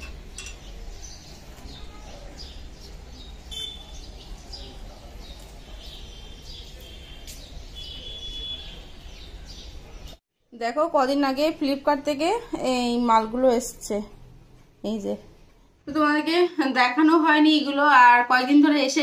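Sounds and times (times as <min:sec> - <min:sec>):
birds chirping: 0:00.0 - 0:10.2
low street rumble: 0:00.0 - 0:16.6.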